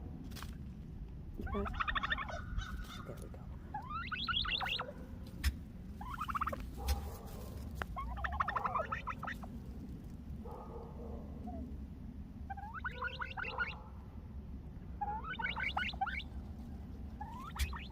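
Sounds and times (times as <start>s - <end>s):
hen turkey calling: 1.4s - 9.6s, 11.4s - 11.7s, 12.5s - 13.8s, 15.0s - 17.9s.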